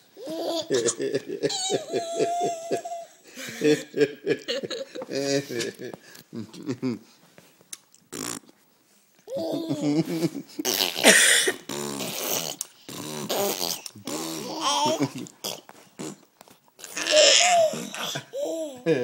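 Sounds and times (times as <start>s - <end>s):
lip raspberries: 10.6s - 18.2s.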